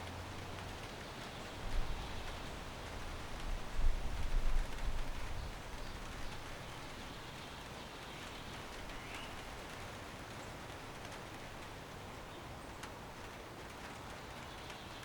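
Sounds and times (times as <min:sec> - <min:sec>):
wind in trees: 0:00.0 - 0:15.0
light tick: 0:12.8 - 0:14.9.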